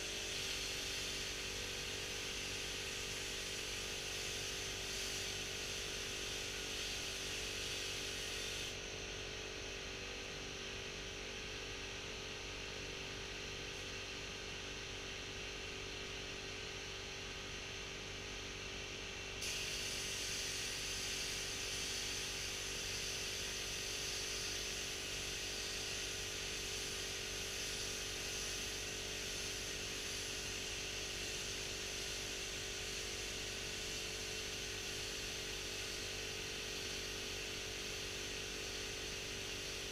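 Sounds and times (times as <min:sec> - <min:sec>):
spray gun hissing: 0:00.2 - 0:01.5, 0:04.1 - 0:08.7, 0:19.4 - 0:26.2, 0:26.8 - 0:30.6.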